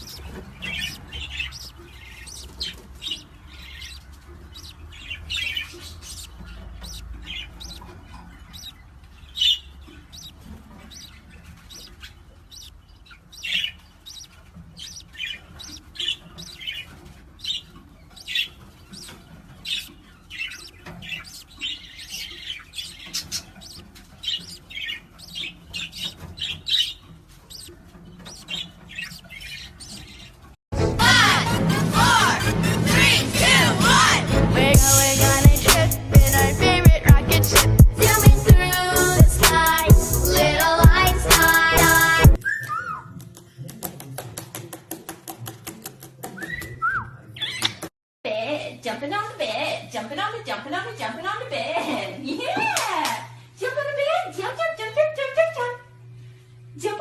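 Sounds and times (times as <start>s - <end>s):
parrot chirping and squawking: 0.0s - 30.6s, 34.8s - 43.2s.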